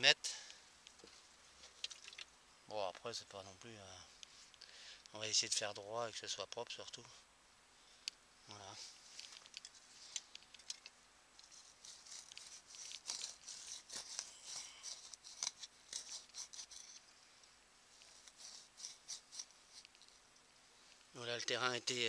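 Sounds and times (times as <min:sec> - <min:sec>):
hand tool scraping dry soil: 0:11.4 - 0:17.1, 0:18.0 - 0:20.2.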